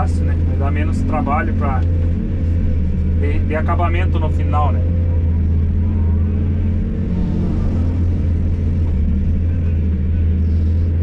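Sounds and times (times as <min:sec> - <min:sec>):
excavator diesel engine humming: 0:00.0 - 0:11.0.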